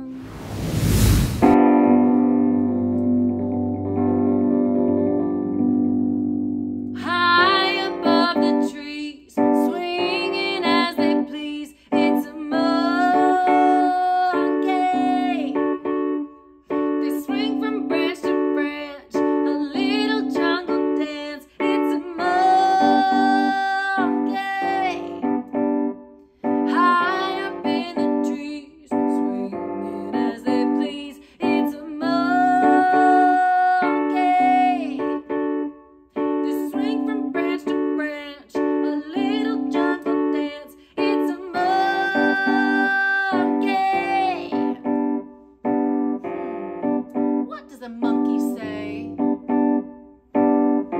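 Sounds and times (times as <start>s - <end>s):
piano playing: 0.0s - 50.9s
woman singing: 7.0s - 15.8s, 16.9s - 25.4s, 26.6s - 35.2s, 36.2s - 44.8s, 47.5s - 49.2s.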